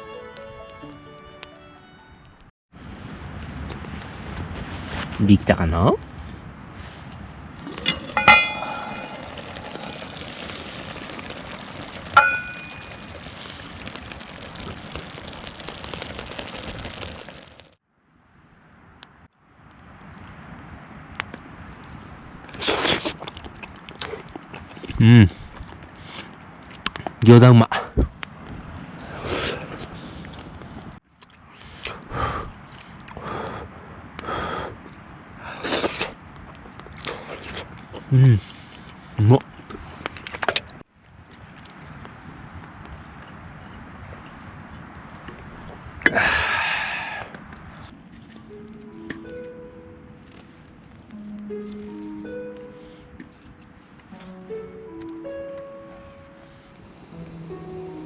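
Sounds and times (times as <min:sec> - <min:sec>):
metal lid clanking: 0:07.7 - 0:13.2
steady hiss: 0:07.7 - 0:17.7
person blowing on hot food: 0:07.7 - 0:17.8, 0:31.8 - 0:32.6, 0:46.1 - 0:47.4, 0:56.8 - 0:58.0.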